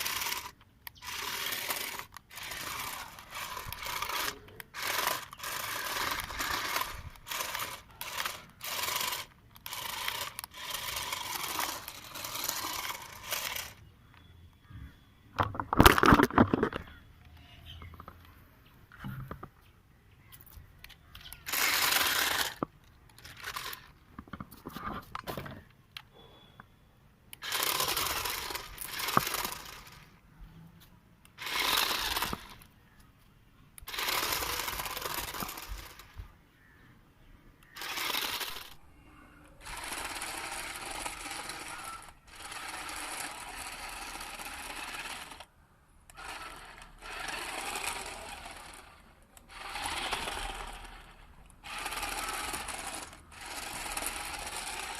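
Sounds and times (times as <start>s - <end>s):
small electric motor whirring: 0.0s - 13.8s, 21.2s - 23.9s, 27.3s - 30.1s, 31.3s - 32.7s, 33.8s - 36.2s, 37.6s - 38.8s, 39.6s - 45.5s, 46.1s - 54.9s.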